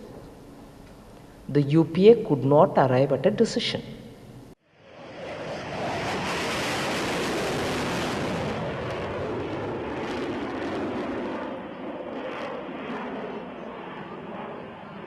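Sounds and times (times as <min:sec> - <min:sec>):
jet engine roar: 0:04.6 - 0:15.0.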